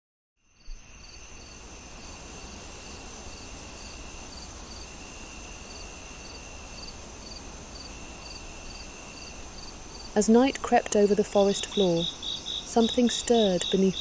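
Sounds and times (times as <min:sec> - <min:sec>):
crickets trilling and chirping: 0:00.4 - 0:14.0
soft hiss: 0:00.4 - 0:14.0.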